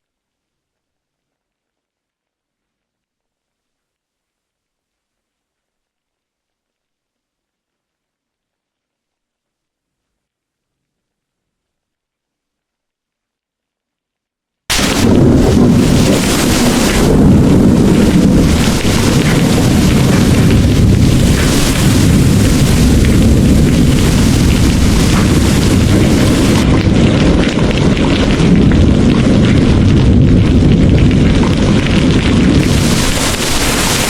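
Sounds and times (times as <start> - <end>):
heavy rain pouring: 14.7 - 34.0
thunder rumbling: 14.7 - 34.0.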